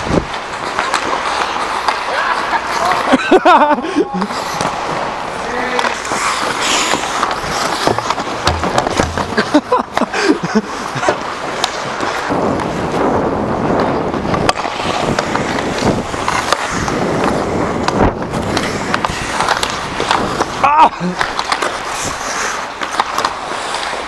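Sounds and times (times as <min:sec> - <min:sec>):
skate blades scraping ice: 0:00.0 - 0:24.0
sharp clicks and knocks: 0:07.2 - 0:09.6.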